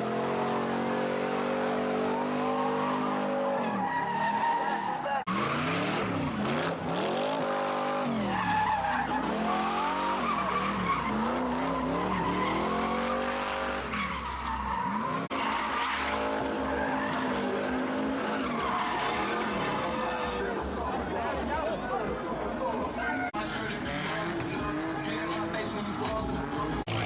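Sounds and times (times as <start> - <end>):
car engine revving: 5.2 - 14.5, 23.4 - 27.0
tyres squealing: 23.0 - 27.0.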